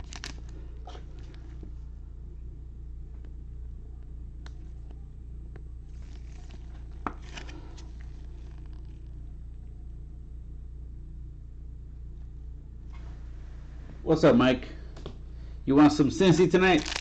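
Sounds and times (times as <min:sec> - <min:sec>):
wrappers rustling: 0:00.0 - 0:01.4, 0:16.3 - 0:17.0
steady low hum: 0:00.0 - 0:17.0.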